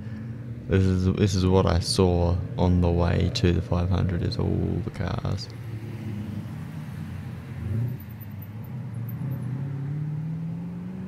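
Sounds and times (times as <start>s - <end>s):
cars driving past: 0.0s - 11.0s
car engine speeding up: 5.5s - 11.0s.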